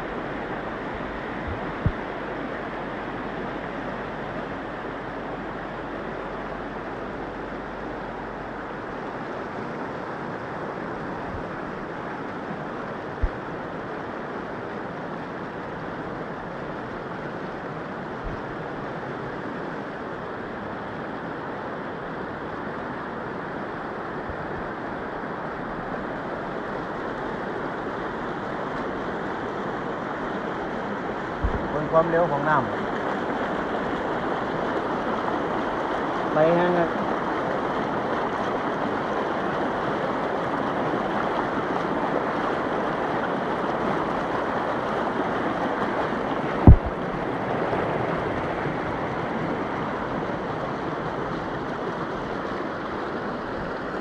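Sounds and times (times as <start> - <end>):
floodwater rushing: 0.0 - 54.0
sharp knocks: 46.6 - 47.0.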